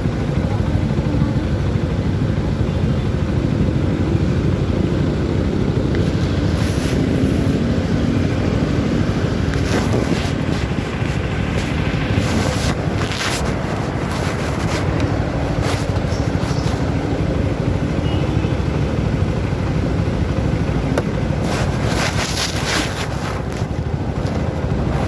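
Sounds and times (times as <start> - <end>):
motorcycle engine running: 0.0 - 25.0
road noise: 0.0 - 25.0.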